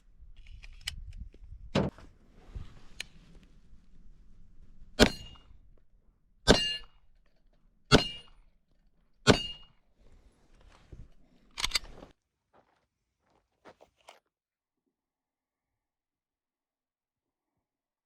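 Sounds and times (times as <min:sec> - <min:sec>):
high metallic ring: 0:05.0 - 0:05.6, 0:06.5 - 0:07.0, 0:09.3 - 0:09.8.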